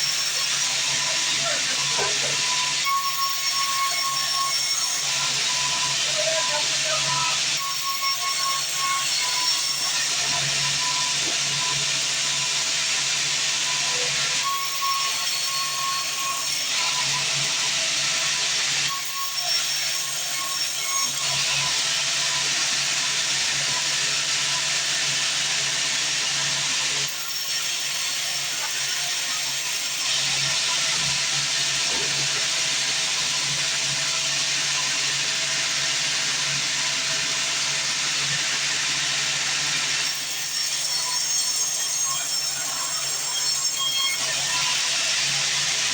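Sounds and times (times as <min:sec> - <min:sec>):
band saw cutting log: 0:25.0 - 0:45.9.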